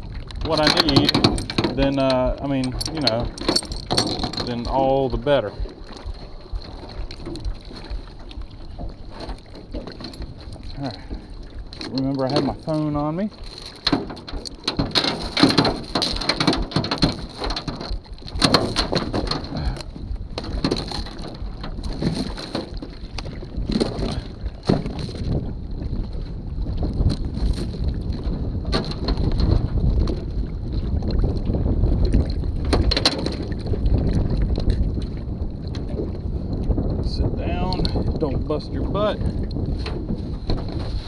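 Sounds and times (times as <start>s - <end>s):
wind rumbling on microphone: 0.0s - 41.0s
handling knocks and scrapes: 0.4s - 25.5s, 39.7s - 41.0s.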